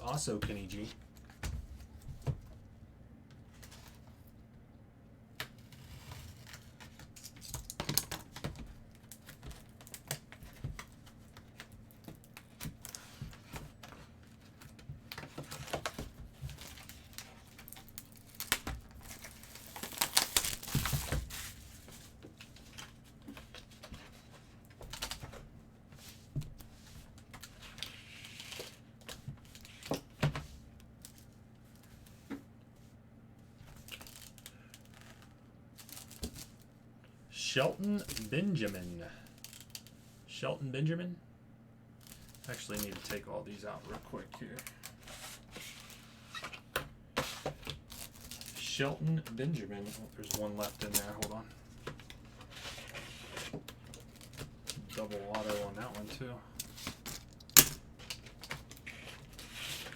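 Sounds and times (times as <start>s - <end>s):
plastic crinkling and tearing: 5.6s - 13.3s, 14.5s - 21.9s, 33.7s - 36.7s, 37.9s - 40.0s, 42.0s - 46.6s, 47.5s - 59.9s
trading cards clicking and rustling: 42.0s - 59.9s.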